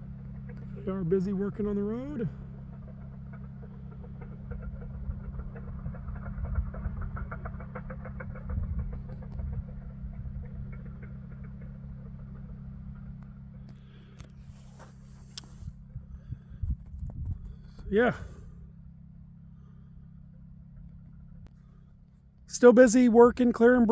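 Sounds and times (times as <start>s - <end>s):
faint rapid clatter: 0.0s - 18.4s
machinery engine droning: 0.0s - 23.9s.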